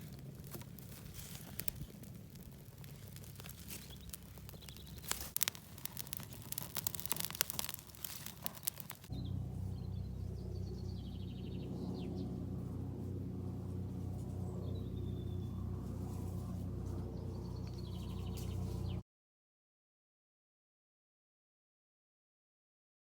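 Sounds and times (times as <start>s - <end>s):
crackling and snapping clicks: 0.0s - 9.1s
steady low hum: 0.0s - 19.0s
birds chirping: 3.1s - 12.5s, 14.3s - 15.8s, 17.0s - 19.0s.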